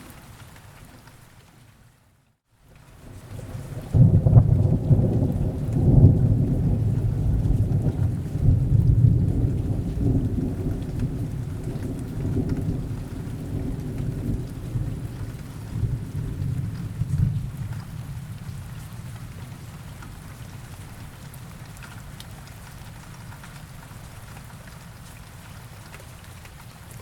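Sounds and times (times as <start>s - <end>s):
rain: 0.0s - 27.0s
thunder crack and rumble: 3.1s - 20.5s.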